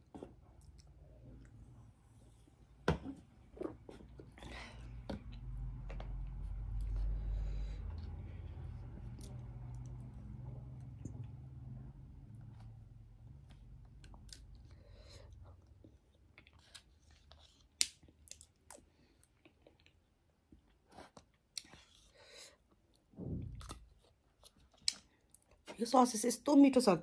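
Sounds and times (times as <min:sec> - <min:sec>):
person chewing food: 0:12.4 - 0:25.6.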